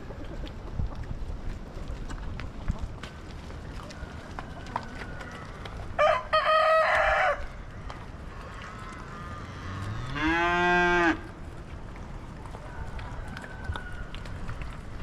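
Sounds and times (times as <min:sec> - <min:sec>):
rooster crowing: 0:06.0 - 0:07.5
cow mooing: 0:09.1 - 0:11.3.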